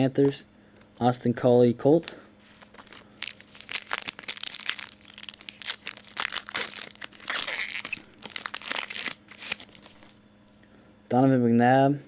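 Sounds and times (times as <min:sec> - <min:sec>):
plastic wrapper tearing and crinkling: 0:02.5 - 0:10.2.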